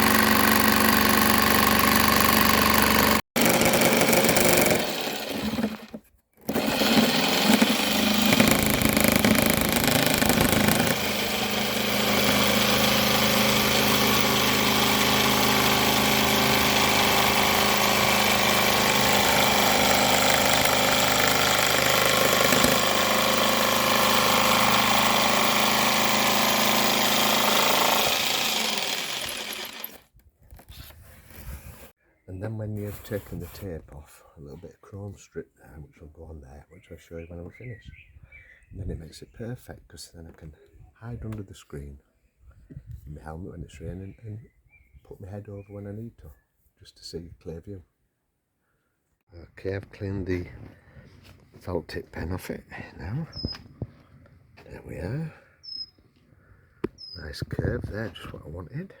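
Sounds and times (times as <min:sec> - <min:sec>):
jigsaw cutting plastic: 0:00.0 - 0:30.1.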